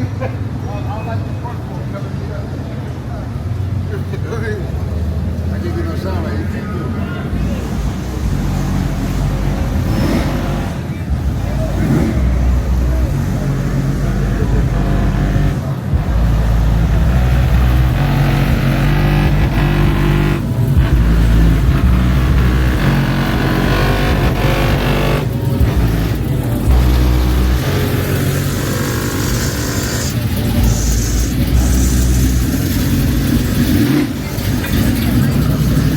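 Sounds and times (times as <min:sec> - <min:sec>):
car engine revving: 0:07.2 - 0:35.9.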